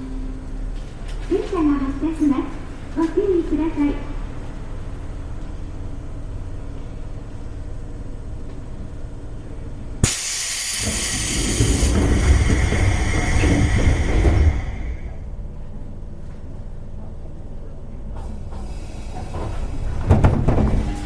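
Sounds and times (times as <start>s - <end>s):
train car humming: 0.0s - 21.0s
train pulling away rumble: 0.0s - 21.0s
brake air hiss: 10.0s - 15.2s, 18.2s - 20.1s.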